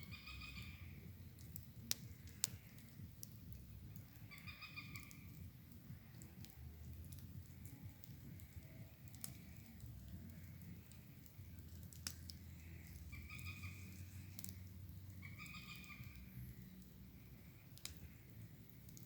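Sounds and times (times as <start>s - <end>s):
sharp crackling clicks: 0.2s - 19.0s
animal calling: 4.2s - 5.4s, 12.5s - 16.4s.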